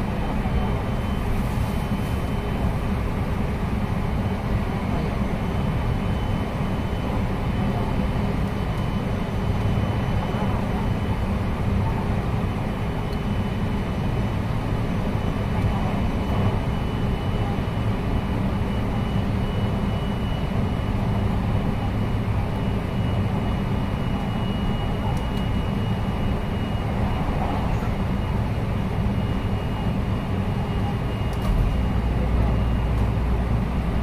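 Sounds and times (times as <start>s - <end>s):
high train whine: 0.0s - 34.0s.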